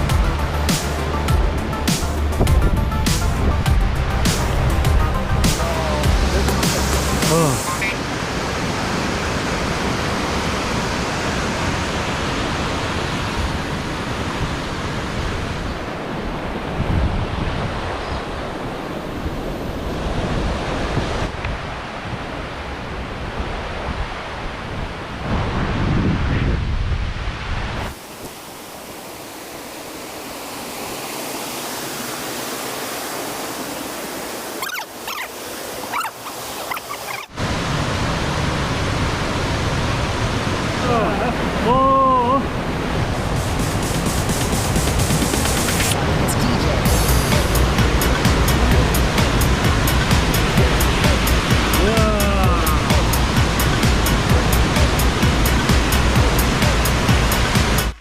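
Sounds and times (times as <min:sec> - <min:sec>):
wind buffeting microphone: 0:08.3 - 0:28.0.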